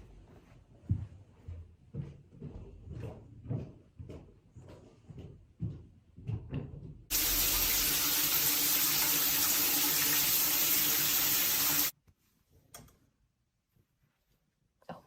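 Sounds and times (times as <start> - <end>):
running water rushing: 7.1 - 11.9.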